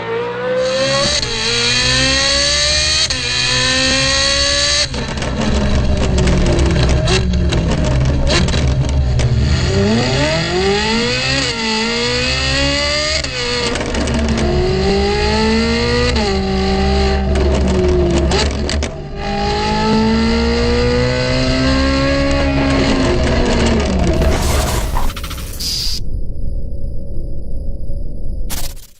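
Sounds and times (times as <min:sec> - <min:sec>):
sports car engine accelerating: 0:00.0 - 0:25.5
exhaust cracks: 0:23.6 - 0:26.0.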